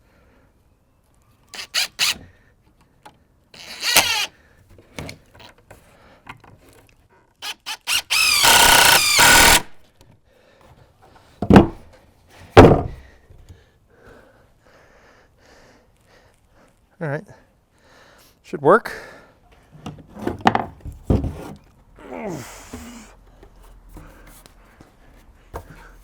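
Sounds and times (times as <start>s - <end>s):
cordless drill whining: 1.5s - 2.2s, 3.6s - 4.3s, 7.4s - 9.8s
sharp knocks: 11.5s - 11.8s.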